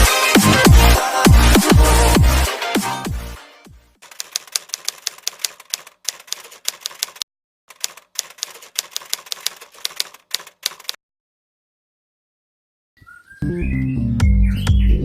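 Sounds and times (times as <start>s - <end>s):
typewriter keys clacking: 4.0s - 11.0s.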